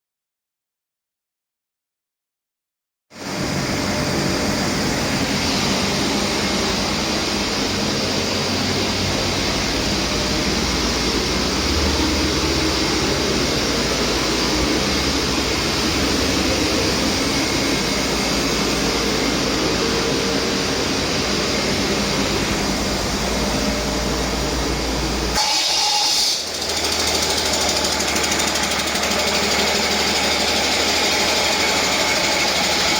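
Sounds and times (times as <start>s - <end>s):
diesel engine running: 3.3s - 25.4s.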